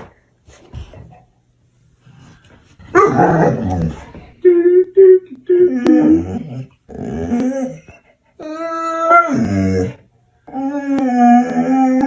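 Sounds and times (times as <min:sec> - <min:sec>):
dog whining howls: 0:02.9 - 0:12.0.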